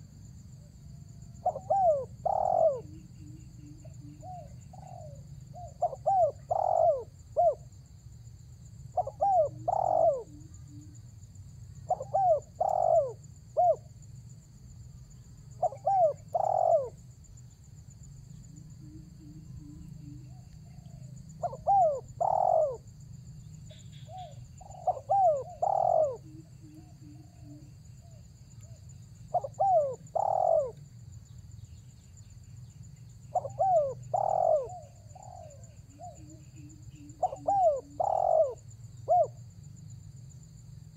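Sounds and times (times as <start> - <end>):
faint high-pitched whine: 0.0 - 40.9
dove cooing: 1.3 - 7.7, 9.0 - 11.0, 11.8 - 13.9, 15.6 - 17.0, 18.8 - 22.9, 23.9 - 28.2, 29.3 - 30.8, 33.3 - 39.4.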